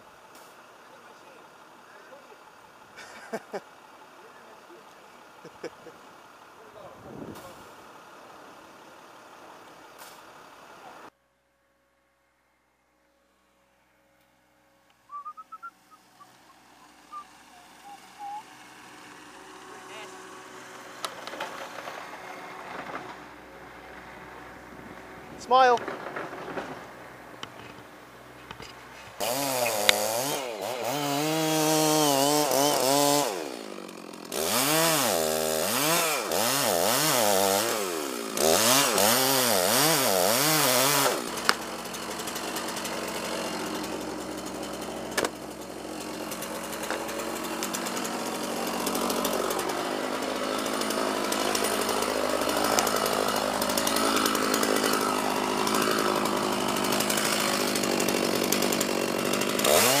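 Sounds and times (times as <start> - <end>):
chainsaw cutting wood: 2.9 - 3.8, 9.9 - 10.5, 14.2 - 60.0.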